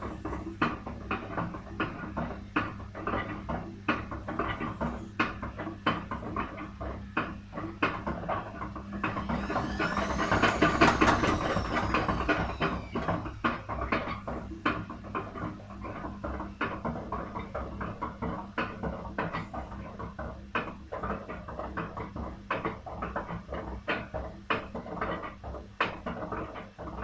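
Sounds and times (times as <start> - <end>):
steady low hum: 0.0 - 18.0
washing machine drum knocking: 0.0 - 27.0
rising and falling whine: 8.8 - 14.1.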